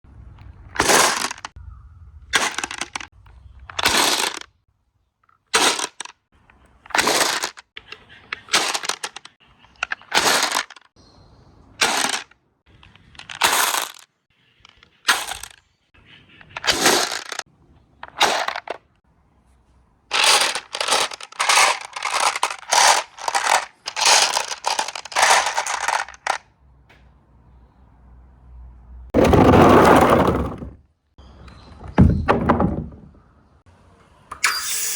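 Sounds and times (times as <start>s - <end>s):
marbles clattering down a run: 20.1s - 26.4s.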